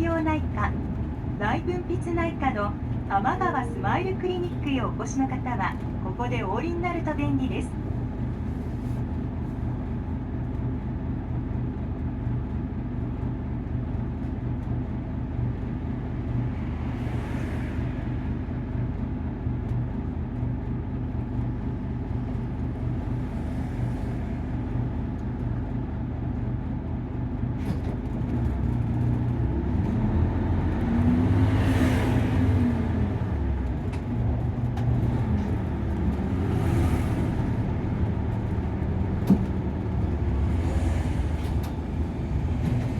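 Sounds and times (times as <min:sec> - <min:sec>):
bus diesel engine revving: 0:28.4 - 0:42.9.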